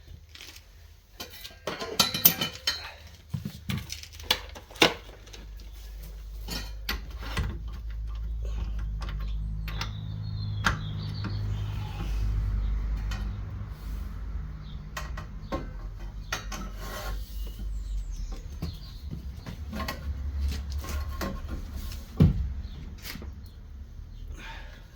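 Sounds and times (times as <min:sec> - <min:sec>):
metal tools knocking and clicking: 0:01.2 - 0:03.0.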